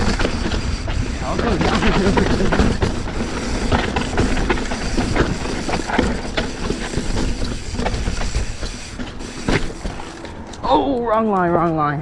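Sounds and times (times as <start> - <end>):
mountain bike rattling over rocks: 1.5 - 10.7.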